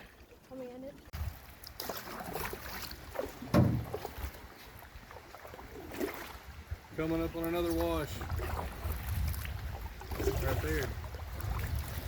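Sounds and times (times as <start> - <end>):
water noise: 0.0 - 12.0
knocks against canoe hull: 3.4 - 4.1
wind on microphone: 5.7 - 12.0.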